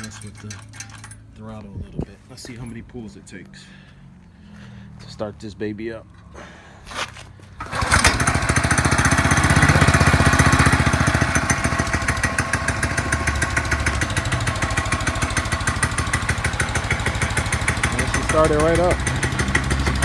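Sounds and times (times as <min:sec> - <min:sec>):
pull-starter cord: 0:00.0 - 0:01.3, 0:06.9 - 0:20.0
small engine running: 0:07.6 - 0:20.0.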